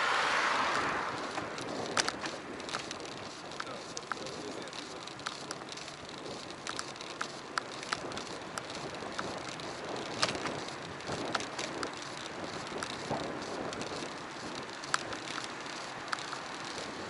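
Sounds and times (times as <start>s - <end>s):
tyre and wind hiss: 0.0s - 17.0s
bicycle clicks and rattles: 0.6s - 17.0s.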